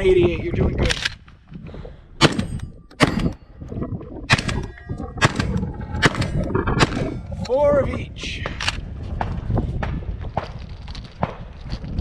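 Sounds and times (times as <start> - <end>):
shotgun shots: 2.2 - 3.4, 4.3 - 7.1
metallic ringing of steel targets: 2.2 - 3.6.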